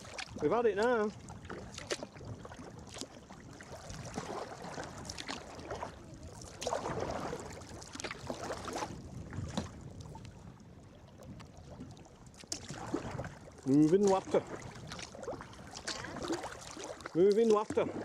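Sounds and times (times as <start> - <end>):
water splashing along kayak hull: 0.0 - 18.0.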